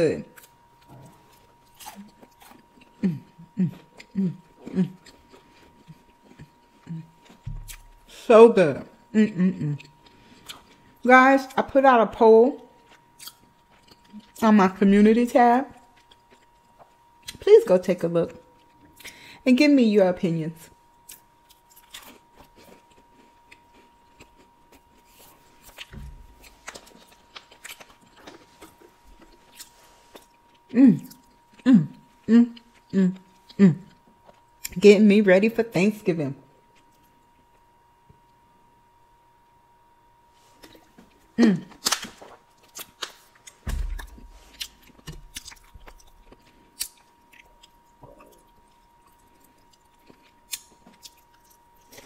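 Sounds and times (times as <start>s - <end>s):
person chewing food: 0.3s - 8.1s, 9.6s - 11.0s, 12.8s - 14.4s, 15.8s - 17.4s, 18.5s - 19.2s, 21.0s - 34.8s, 40.5s - 52.0s
low thump: 43.6s - 44.2s.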